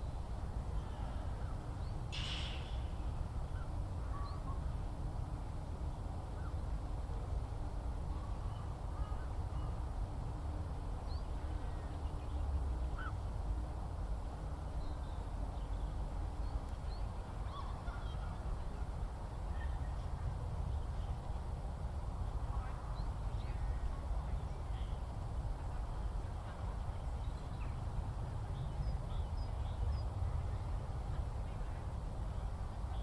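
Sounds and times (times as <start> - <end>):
steady low rumble: 0.0 - 33.0
faint bird chirps: 0.8 - 4.7, 11.0 - 13.2.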